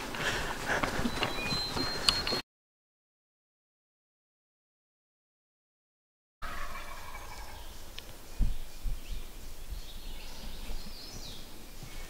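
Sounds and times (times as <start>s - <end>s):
songbird chirps: 0.0s - 2.4s, 6.4s - 12.0s
turkey gobbling: 6.4s - 7.6s.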